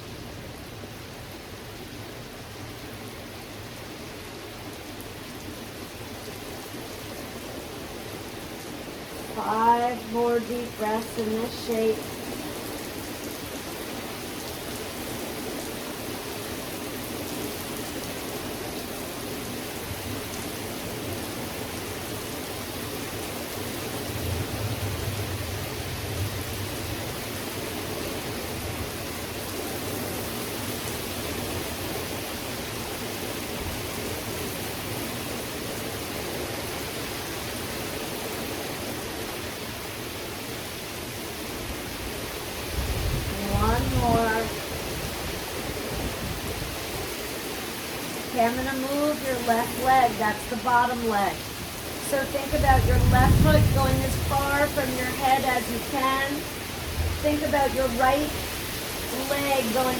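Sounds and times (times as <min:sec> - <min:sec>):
heavy rain falling: 0:00.0 - 0:59.9
low rumble: 0:52.5 - 0:54.8, 0:56.7 - 0:58.5.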